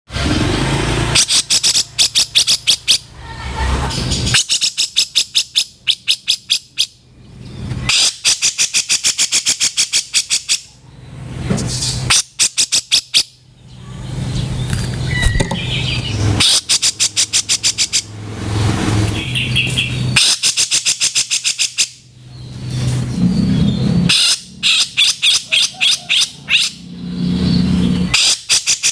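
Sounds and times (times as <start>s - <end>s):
bird harsh rasping chatter: 0.4s - 7.0s, 7.8s - 10.8s, 11.7s - 18.2s, 19.0s - 22.0s, 22.7s - 28.9s.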